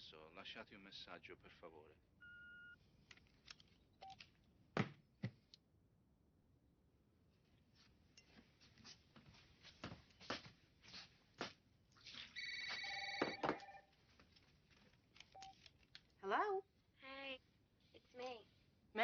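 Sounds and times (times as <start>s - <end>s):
telephone ringing: 12.4s - 14.0s.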